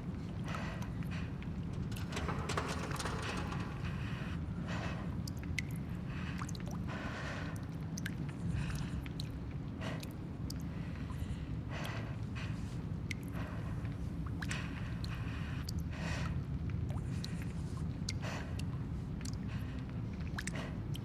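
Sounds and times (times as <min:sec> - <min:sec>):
small ticks and drips: 0:05.2 - 0:21.0.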